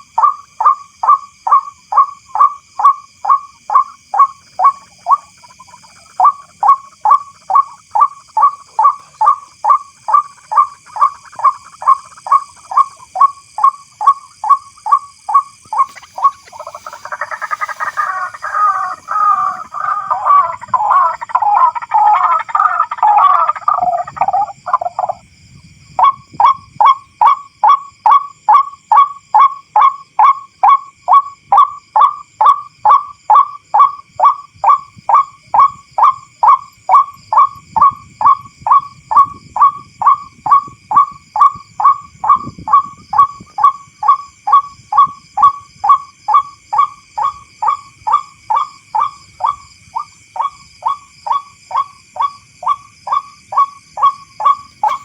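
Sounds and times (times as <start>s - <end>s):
bird repeated monotonous call: 0.0s - 25.2s, 25.9s - 55.0s
bird harsh cackling: 4.2s - 13.3s, 15.7s - 25.2s, 54.0s - 55.0s.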